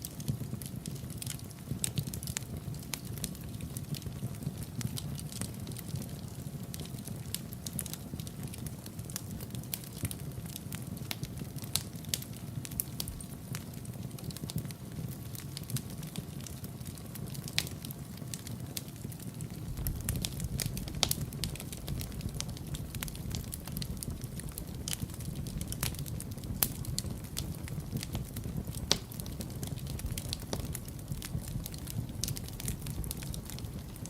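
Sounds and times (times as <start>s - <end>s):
fire crackling and popping: 0.0s - 34.0s
low rush of flame: 17.2s - 34.0s.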